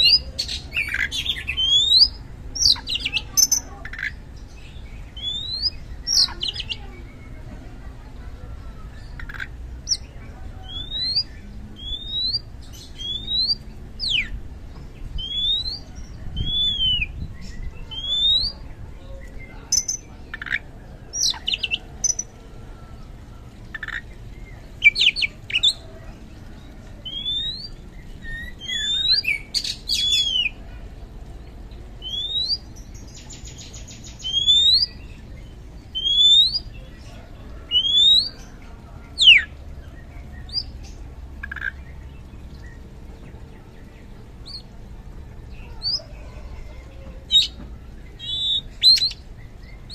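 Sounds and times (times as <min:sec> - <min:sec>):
bird singing whistled notes: 0:00.0 - 0:03.7, 0:05.0 - 0:07.2, 0:09.8 - 0:14.4, 0:15.1 - 0:20.5, 0:27.0 - 0:30.6, 0:32.0 - 0:35.2, 0:35.9 - 0:36.8, 0:37.6 - 0:38.6, 0:47.3 - 0:49.9.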